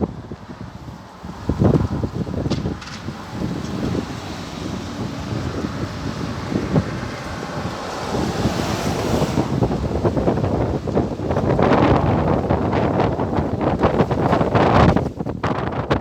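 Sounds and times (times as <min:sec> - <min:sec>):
strong wind buffeting microphone: 0:00.0 - 0:16.0.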